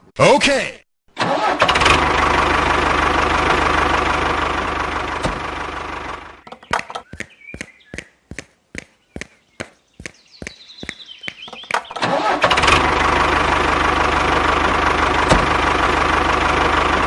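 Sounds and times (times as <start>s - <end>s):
regular sharp clicks: 6.4s - 12.2s.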